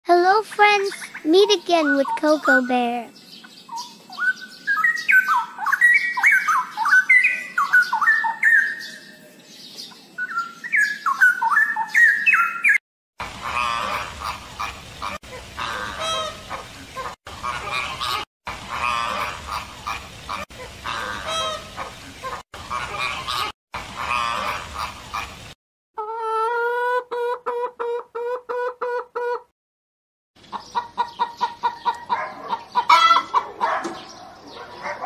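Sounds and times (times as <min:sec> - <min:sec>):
bird whistled song: 0:03.1 - 0:12.8
flamingos honking: 0:13.2 - 0:25.4, 0:32.9 - 0:33.4.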